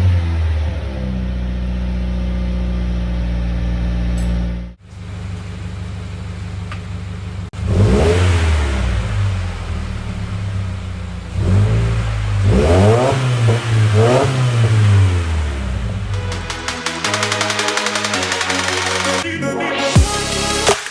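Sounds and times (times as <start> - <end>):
car engine revving: 7.5 - 19.2.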